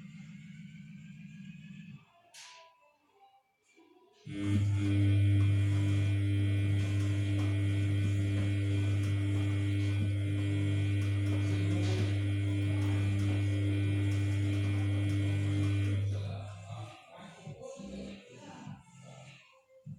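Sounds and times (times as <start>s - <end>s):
washing machine mains hum: 4.3s - 18.1s.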